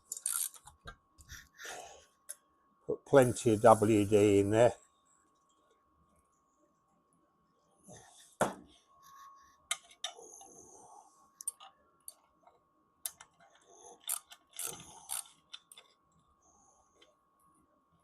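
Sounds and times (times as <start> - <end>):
faint high-pitched hum: 0.0 - 18.0
metallic clicks of hand tools: 14.0 - 15.9.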